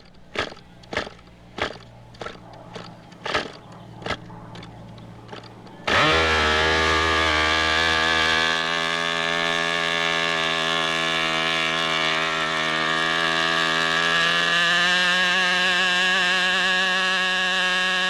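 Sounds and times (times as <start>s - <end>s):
model airplane engine buzzing: 0.0s - 18.0s.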